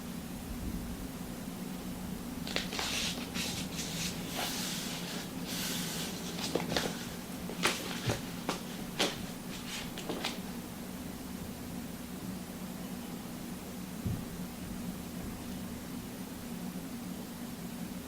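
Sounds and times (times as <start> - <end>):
rustling and handling noises: 2.4 - 10.6.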